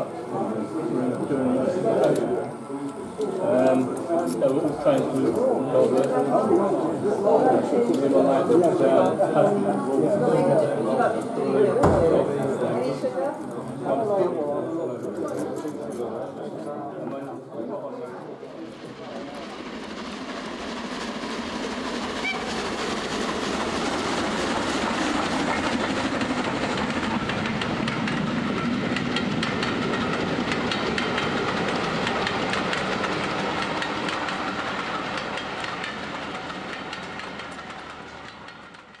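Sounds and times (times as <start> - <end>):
train running on rails: 0.0 - 39.0
wheels clicking over track: 22.0 - 39.0.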